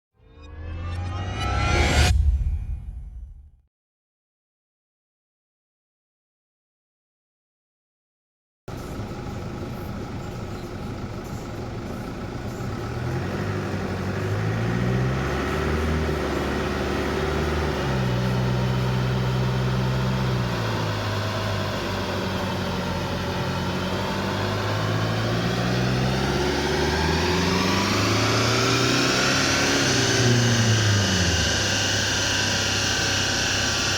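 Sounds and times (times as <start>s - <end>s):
rising whine: 0.2s - 3.4s, 8.7s - 33.9s
car engine running: 8.7s - 33.9s.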